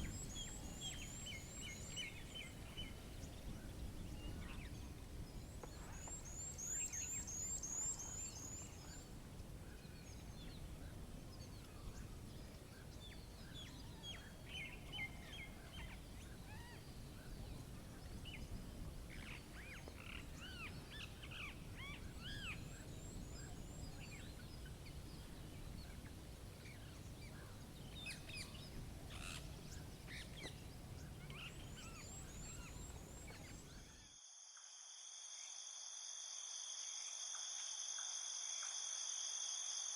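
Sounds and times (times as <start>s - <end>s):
small birds chirping: 19.1s - 34.0s.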